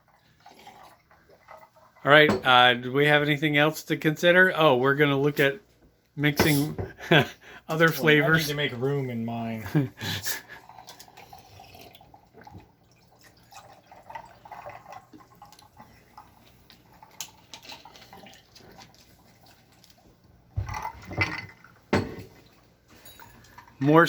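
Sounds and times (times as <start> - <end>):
soda pouring into a cup: 0.0 - 2.0, 10.2 - 20.0.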